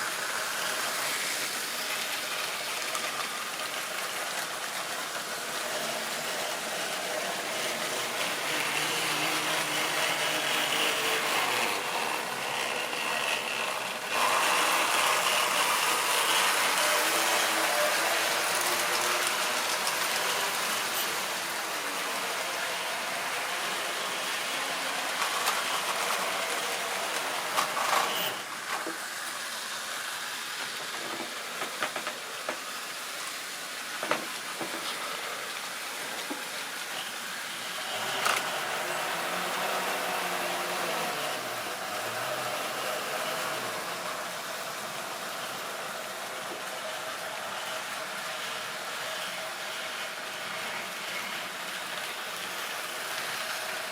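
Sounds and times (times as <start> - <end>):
model train wheels rattling: 0.1 - 28.9.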